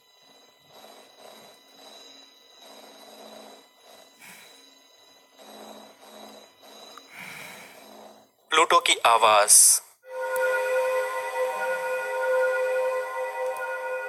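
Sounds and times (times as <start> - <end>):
pulsing noise: 0.0 - 8.4, 10.0 - 14.0
faint steady high tone: 10.0 - 14.0.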